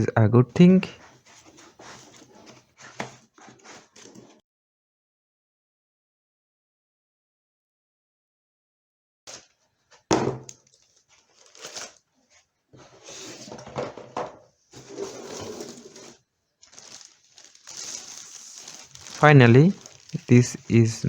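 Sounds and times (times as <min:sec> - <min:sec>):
packaging rustling: 0:10.5 - 0:13.6, 0:14.8 - 0:20.9.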